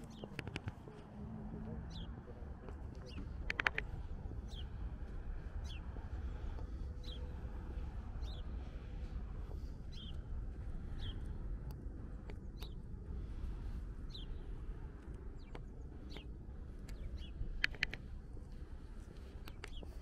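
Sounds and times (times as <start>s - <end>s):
low background rumble: 0.0s - 20.0s
small birds chirping: 0.0s - 20.0s
sharp clicks: 2.9s - 4.6s, 15.0s - 18.2s.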